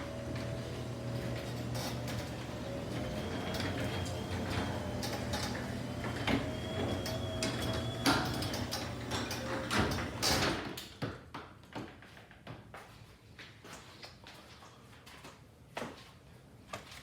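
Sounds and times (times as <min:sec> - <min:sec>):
garage door motor hum: 0:00.0 - 0:10.7
garage door clicks and rattles: 0:00.3 - 0:10.8.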